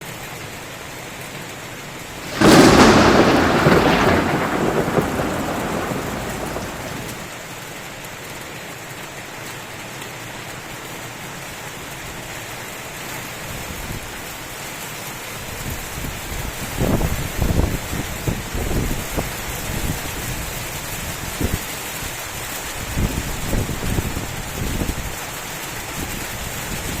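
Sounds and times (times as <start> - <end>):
heavy rain hissing: 2.2 - 7.3
thunder rumbling: 2.2 - 7.3.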